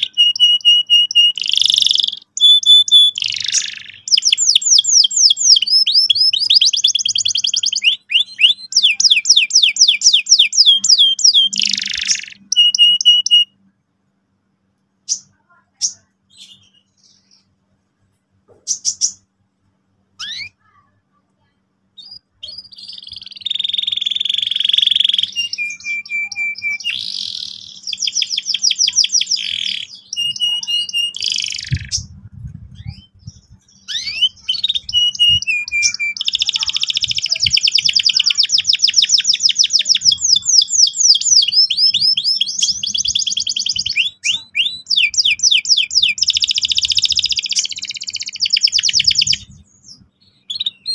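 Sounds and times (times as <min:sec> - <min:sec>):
canary singing: 0:00.0 - 0:13.7, 0:15.0 - 0:17.8, 0:18.5 - 0:19.4, 0:20.1 - 0:50.9.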